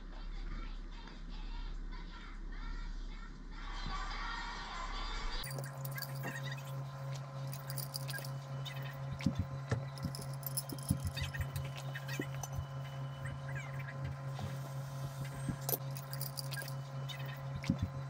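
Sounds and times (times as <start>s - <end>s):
low electrical hum: 0.0s - 18.0s
objects clicking and rattling: 5.4s - 6.6s, 7.5s - 8.4s, 9.9s - 12.6s, 15.6s - 17.8s.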